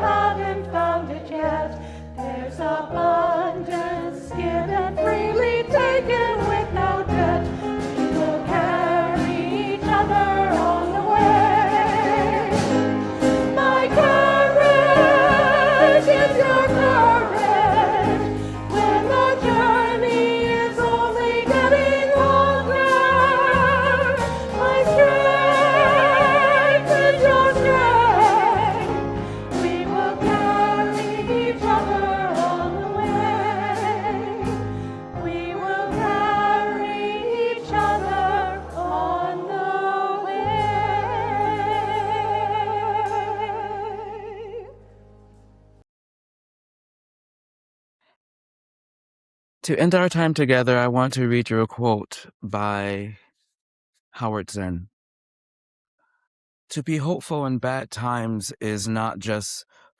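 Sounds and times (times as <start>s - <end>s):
voices singing a hymn: 0.0s - 44.5s.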